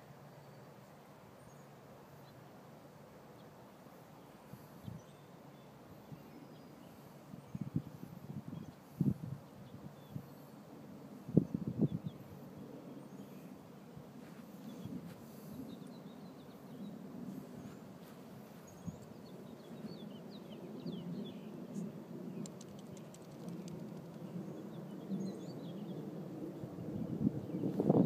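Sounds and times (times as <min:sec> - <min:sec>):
small birds chirping: 0:03.3 - 0:10.7, 0:14.2 - 0:28.0.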